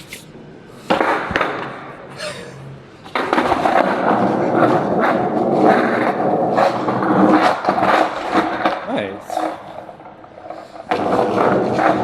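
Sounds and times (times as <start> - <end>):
skateboard wheels rolling on pavement: 3.1 - 8.7, 10.4 - 12.0.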